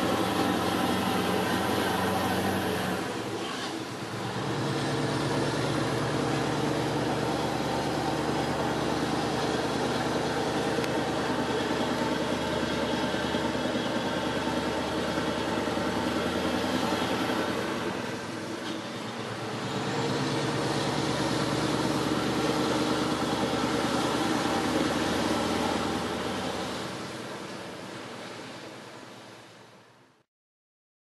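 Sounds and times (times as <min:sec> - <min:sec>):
diesel truck engine running: 0:00.0 - 0:29.9.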